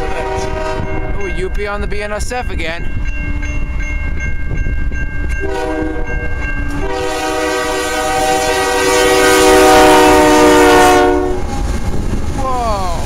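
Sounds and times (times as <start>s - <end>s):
locomotive air horn: 0.0s - 1.2s, 5.4s - 11.6s
train rumbling past: 0.0s - 13.0s.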